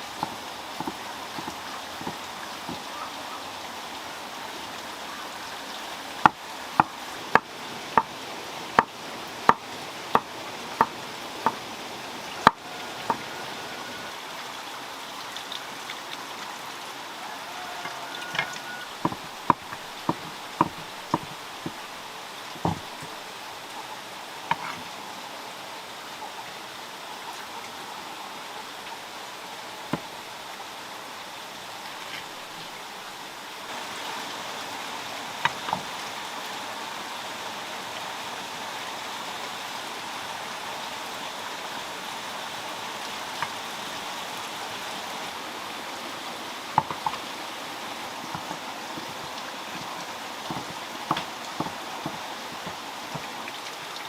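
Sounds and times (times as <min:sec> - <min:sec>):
sharp knocks: 0:00.2 - 0:02.8, 0:19.0 - 0:21.8, 0:22.6 - 0:23.1, 0:46.8 - 0:47.2, 0:50.5 - 0:53.3.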